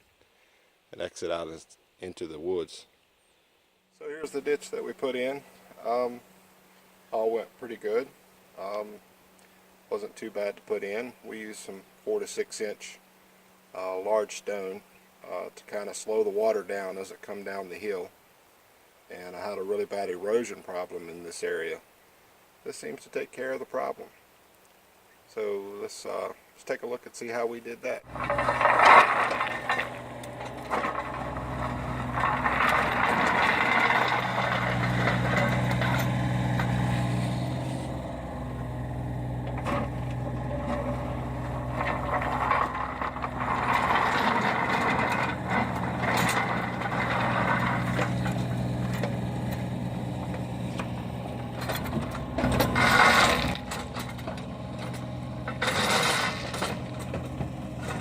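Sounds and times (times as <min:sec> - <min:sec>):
diesel engine running: 0:28.1 - 0:58.0
metal clanks and rattles: 0:28.1 - 0:58.0.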